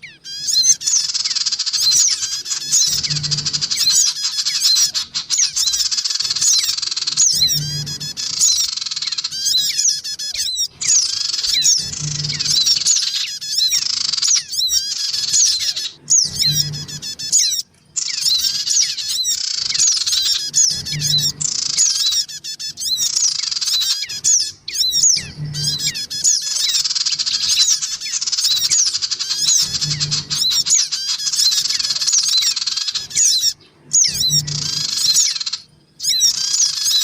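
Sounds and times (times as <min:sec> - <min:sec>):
birds chattering with high chirps: 0:00.0 - 0:37.0
short low hum: 0:02.5 - 0:05.8, 0:07.2 - 0:08.6, 0:10.7 - 0:13.0, 0:15.2 - 0:17.4, 0:20.0 - 0:21.8, 0:24.8 - 0:26.3, 0:29.4 - 0:30.7, 0:33.9 - 0:35.2.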